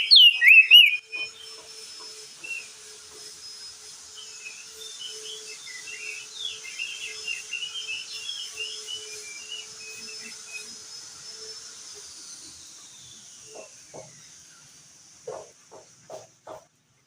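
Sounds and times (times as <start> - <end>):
bird twittering: 0.0 - 1.5.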